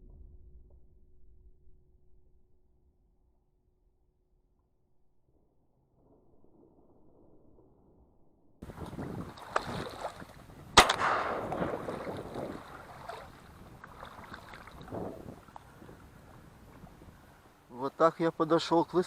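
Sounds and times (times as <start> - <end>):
shotgun shot: 10.8 - 12.8.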